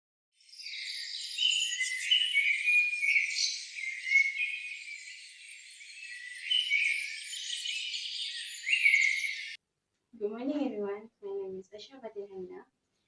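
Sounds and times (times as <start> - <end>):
insects chirping: 0.6 - 9.6
whistled calls stepping in pitch: 0.6 - 9.6.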